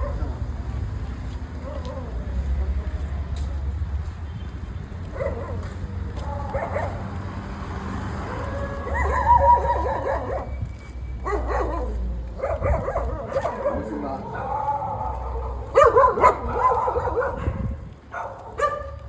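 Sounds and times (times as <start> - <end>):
dog whining and yelping: 8.5 - 13.6.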